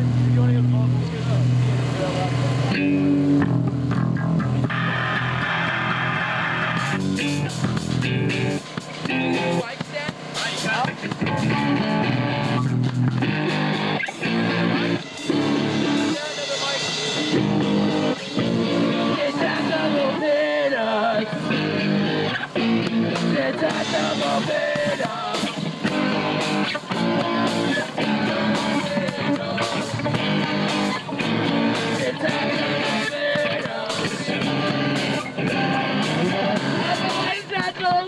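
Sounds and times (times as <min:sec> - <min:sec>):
drums: 0:00.0 - 0:38.0
electric guitar: 0:00.0 - 0:38.0
person singing: 0:18.3 - 0:38.0.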